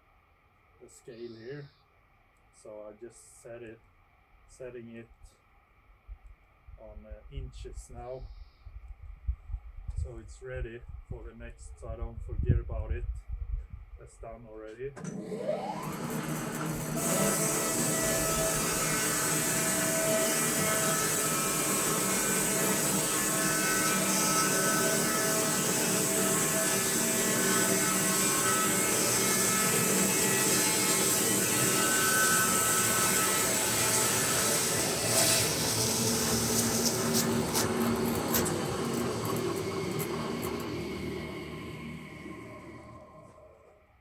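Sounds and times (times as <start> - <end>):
bandsaw mill whine: 15.0 - 44.0.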